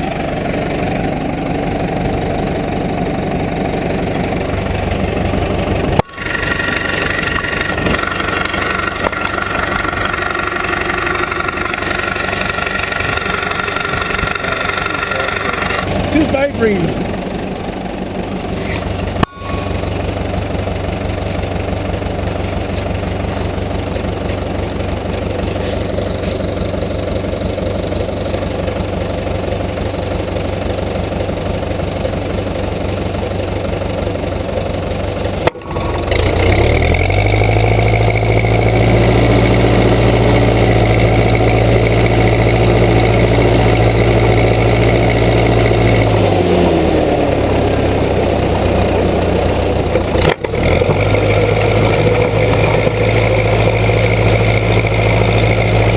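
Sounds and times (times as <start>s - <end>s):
backhoe engine running: 0.0s - 55.9s.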